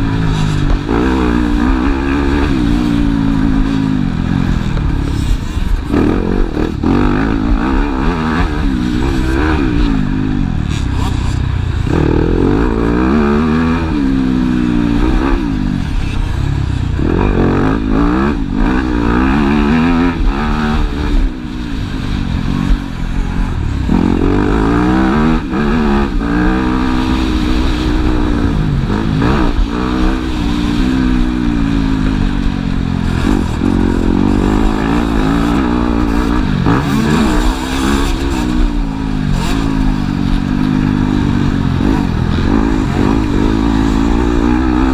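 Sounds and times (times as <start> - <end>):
motocross bike engines revving: 0.0 - 44.9.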